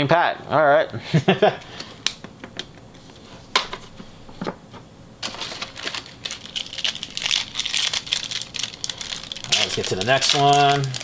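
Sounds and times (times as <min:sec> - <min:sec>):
wrapper crinkling and tearing: 0:05.2 - 0:11.0.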